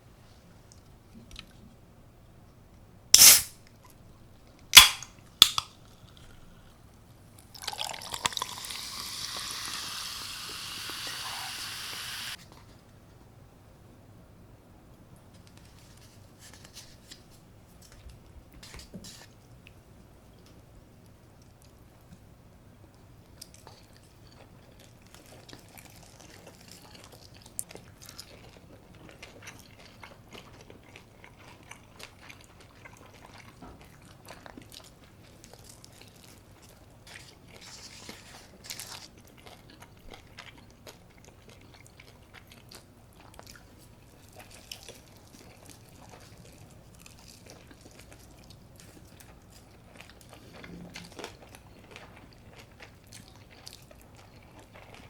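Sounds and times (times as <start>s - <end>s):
crunchy bites and chewing: 3.2s - 3.5s, 4.8s - 6.4s.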